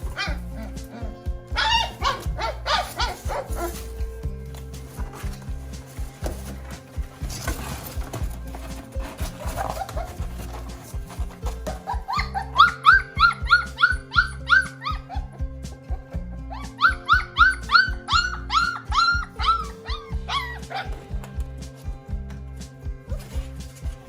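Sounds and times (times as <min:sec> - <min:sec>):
puppy crying: 0:00.0 - 0:04.2, 0:07.4 - 0:21.2
background music: 0:00.0 - 0:24.0.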